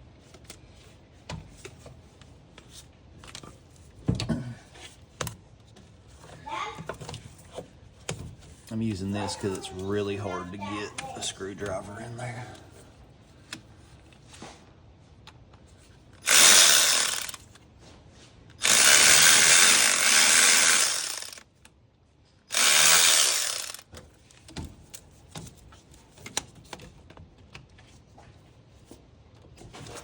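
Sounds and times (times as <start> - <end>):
cordless power driver running: 16.2 - 17.5, 18.6 - 21.4, 22.5 - 23.9.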